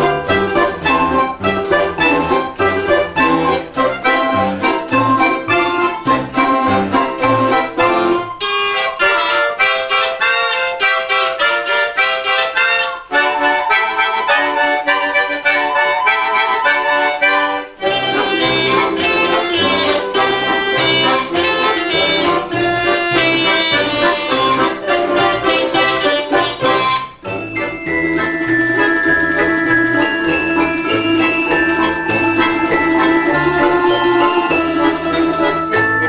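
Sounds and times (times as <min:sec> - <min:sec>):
folk ensemble playing lively tune: 0:00.0 - 0:36.0.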